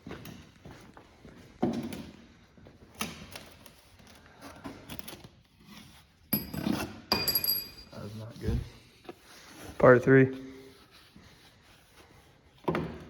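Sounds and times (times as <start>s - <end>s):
sharp metallic clink: 6.4s - 7.9s.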